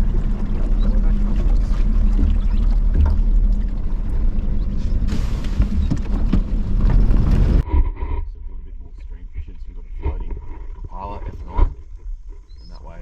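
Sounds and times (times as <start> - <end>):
outboard motor running: 0.0 - 7.6.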